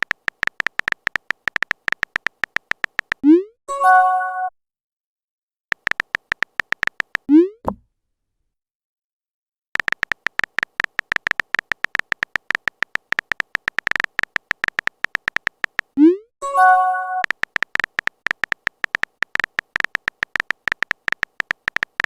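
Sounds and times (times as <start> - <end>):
typing clicks: 0.0 - 3.3, 5.7 - 7.4, 9.8 - 16.0, 17.0 - 22.0.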